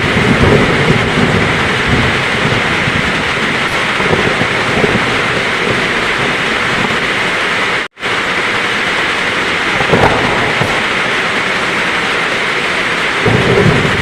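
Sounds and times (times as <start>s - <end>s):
heavy rain hissing: 0.0s - 14.0s
thunder rumbling: 0.0s - 14.0s.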